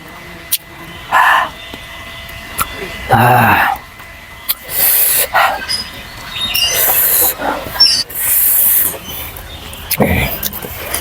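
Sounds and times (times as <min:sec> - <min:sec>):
mouth clicks: 0:04.5 - 0:11.0.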